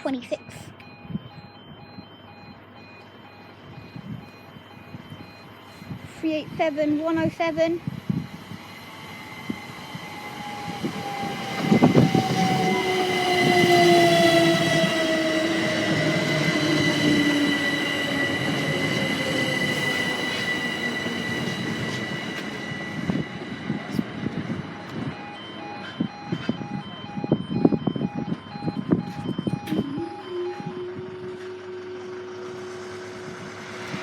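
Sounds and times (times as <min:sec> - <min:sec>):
short electronic beeps: 0:00.0 - 0:07.0, 0:24.7 - 0:31.7
train rumble: 0:00.0 - 0:34.0
train traction motor whine: 0:00.8 - 0:34.0
high steady squeal: 0:07.8 - 0:24.6.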